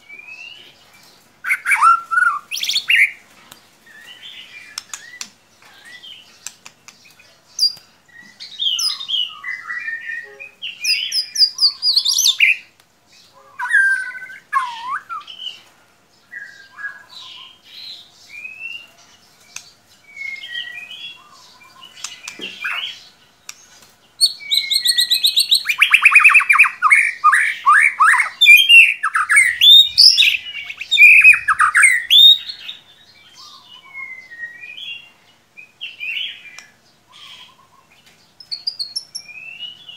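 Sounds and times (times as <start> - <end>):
bird singing whistled phrases and trills: 1.4 - 3.2, 7.0 - 12.7, 13.3 - 15.6, 16.3 - 18.9, 20.1 - 23.0, 24.2 - 39.9.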